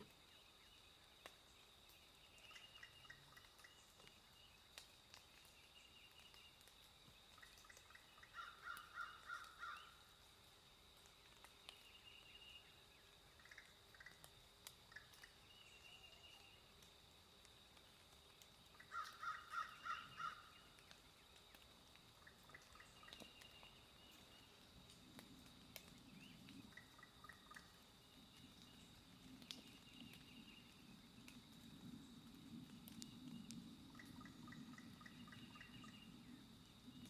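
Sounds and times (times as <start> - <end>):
faint distant birds calling: 0.1 - 10.1, 18.7 - 24.6
bird harsh calls: 18.9 - 20.6.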